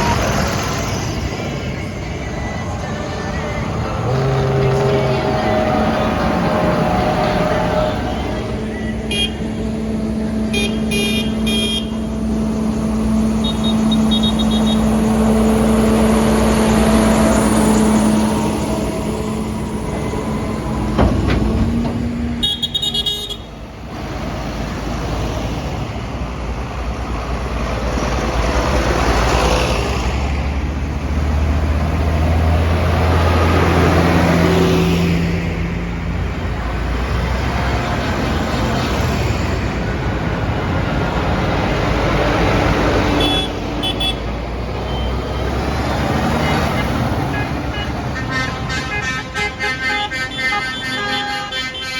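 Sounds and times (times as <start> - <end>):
tractor engines running: 0.0 - 51.9
horns tooting: 2.6 - 15.8, 16.6 - 23.8, 43.1 - 45.6, 46.2 - 51.9.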